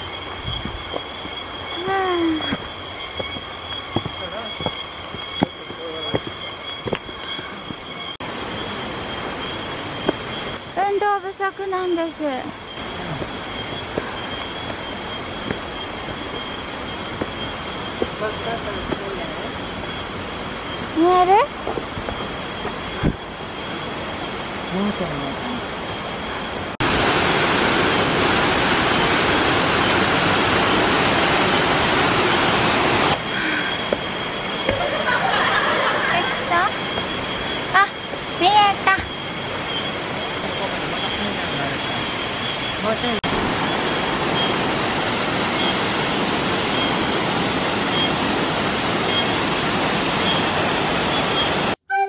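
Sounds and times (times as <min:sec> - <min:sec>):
waterfall rushing: 0:26.5 - 0:51.8.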